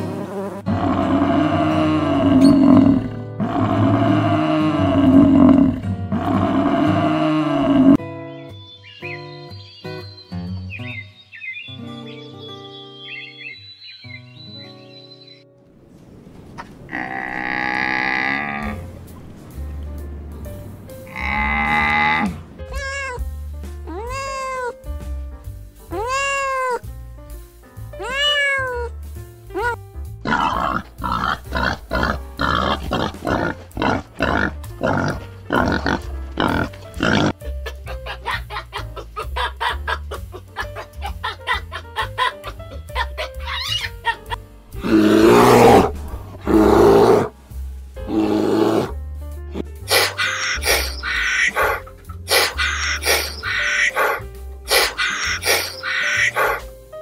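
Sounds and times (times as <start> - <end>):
background music: 0.0 - 15.6, 17.2 - 57.0
rough animal calls: 21.1 - 23.2, 30.2 - 37.4, 40.6 - 47.3, 49.9 - 56.7
cat meowing: 22.7 - 23.2, 23.9 - 24.8, 25.9 - 26.8, 28.0 - 28.9.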